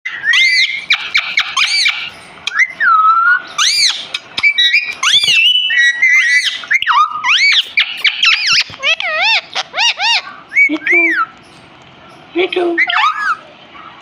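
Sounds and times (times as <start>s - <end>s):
parakeet whistling calls: 0.1s - 11.7s, 12.8s - 13.5s.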